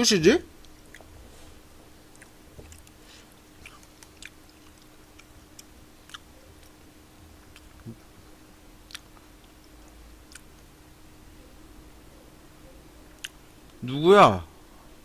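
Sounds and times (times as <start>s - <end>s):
faint steady hum: 0.0s - 15.0s
close-up chewing: 0.6s - 6.8s, 7.4s - 8.1s, 8.8s - 10.7s.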